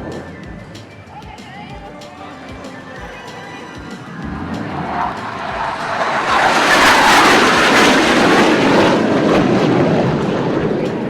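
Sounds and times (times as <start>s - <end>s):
jets flying past low: 2.2s - 11.0s.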